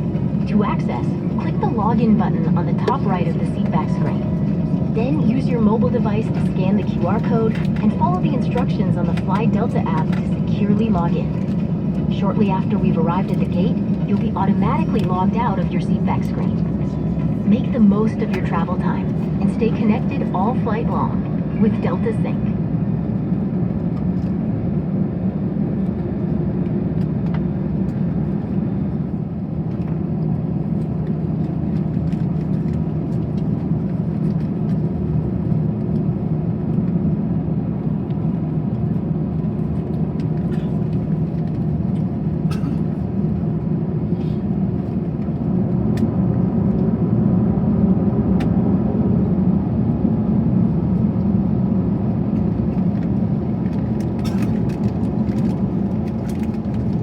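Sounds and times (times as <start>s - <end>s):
cabin air hum: 0.0s - 24.9s
aircraft engines idling rumble: 0.0s - 57.0s.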